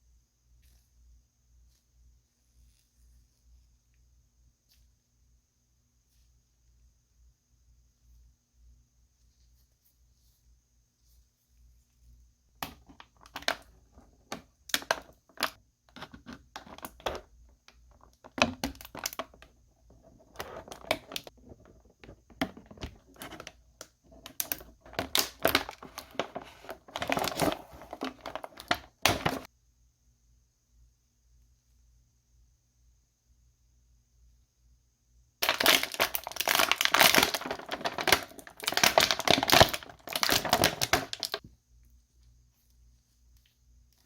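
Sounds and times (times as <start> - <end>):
plastic packaging crinkling: 17.9 - 29.5, 35.4 - 41.4.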